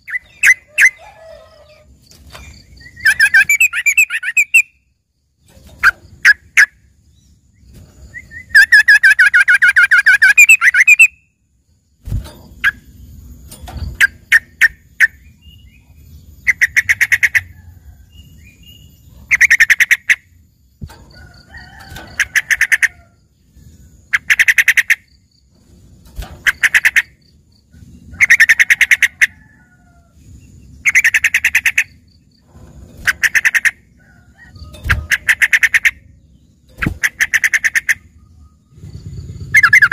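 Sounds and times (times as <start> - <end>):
bird warbling and chattering: 2.6 - 4.7, 21.9 - 23.0, 24.1 - 25.1, 26.4 - 27.2, 33.0 - 33.9, 34.7 - 36.1, 36.7 - 39.9.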